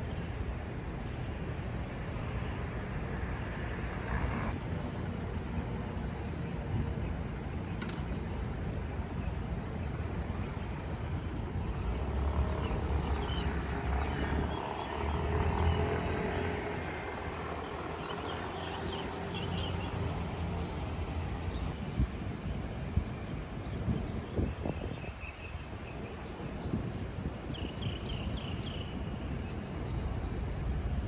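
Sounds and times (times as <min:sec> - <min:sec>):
low vehicle rumble: 0:11.7 - 0:21.9.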